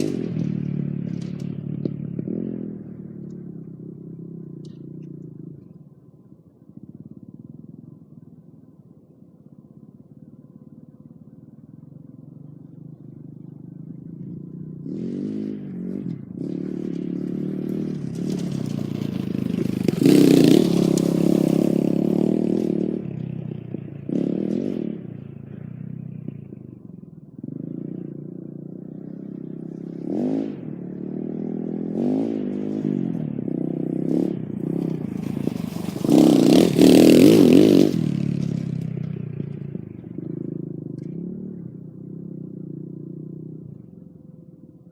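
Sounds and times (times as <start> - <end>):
dirt bike engine revving: 14.5 - 25.9, 27.4 - 42.7.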